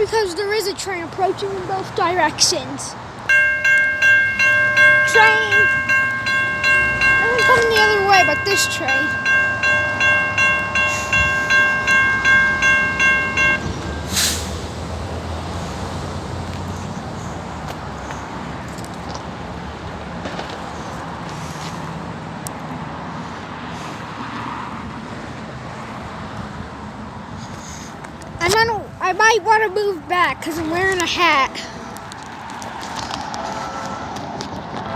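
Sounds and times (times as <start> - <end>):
train rolling rumble and hiss: 0.0 - 34.9
railroad crossing bell ringing: 3.3 - 15.5.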